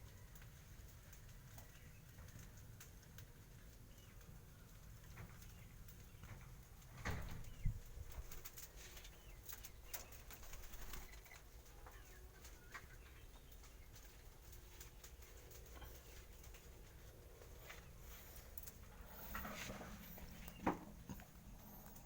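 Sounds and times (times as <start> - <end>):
wing rustling: 14.0 - 22.0
bird calls: 15.1 - 22.0.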